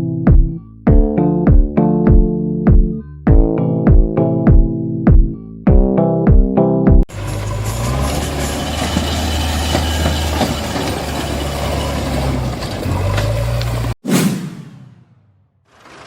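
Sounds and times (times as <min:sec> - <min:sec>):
vehicle engine running: 0:07.1 - 0:14.0.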